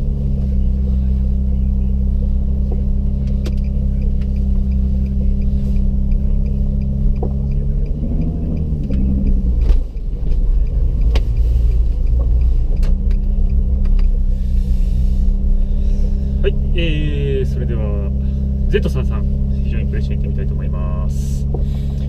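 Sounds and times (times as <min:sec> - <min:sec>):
car engine from inside cabin: 0:00.0 - 0:22.0.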